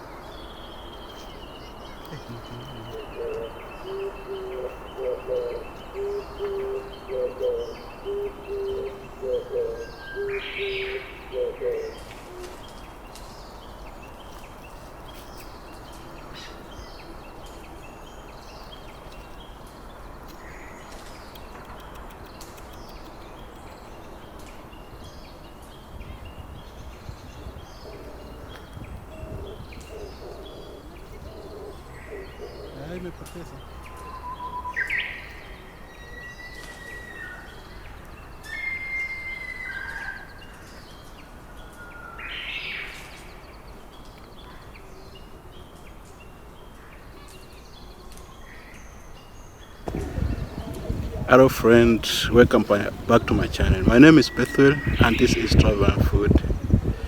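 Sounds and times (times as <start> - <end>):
faint bird chirps: 0.0 - 12.7, 26.1 - 40.4
bird hooting: 1.1 - 12.5, 27.8 - 33.2.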